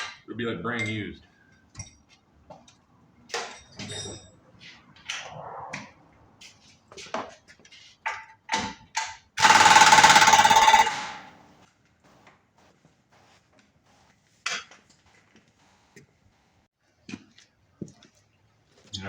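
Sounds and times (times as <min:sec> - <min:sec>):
tools clinking and knocking: 0:03.3 - 0:04.4, 0:08.1 - 0:11.3
air impact wrench rattling: 0:09.4 - 0:11.4.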